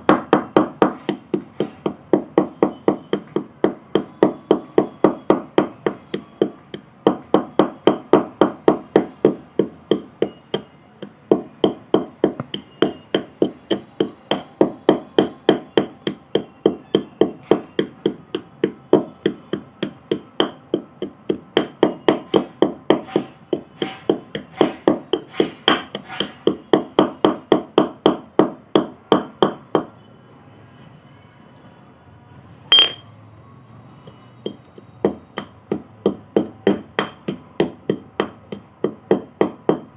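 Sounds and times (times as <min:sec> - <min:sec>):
sharp hit with ringing tone: 0:32.7 - 0:33.1.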